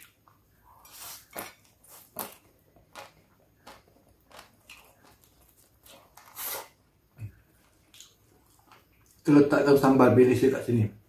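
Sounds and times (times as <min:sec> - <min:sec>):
crunchy chewing: 0:00.0 - 0:06.8.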